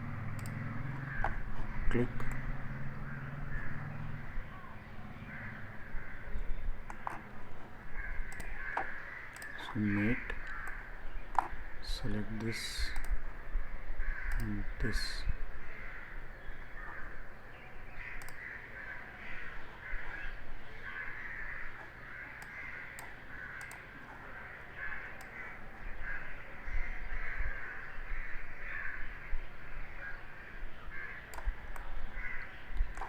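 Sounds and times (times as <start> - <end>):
birds calling: 0.0 - 33.0
faint computer mouse clicks: 0.3 - 0.6, 8.3 - 9.7, 10.3 - 11.5, 12.4 - 13.2, 14.3 - 14.5, 18.2 - 18.4, 22.4 - 23.8.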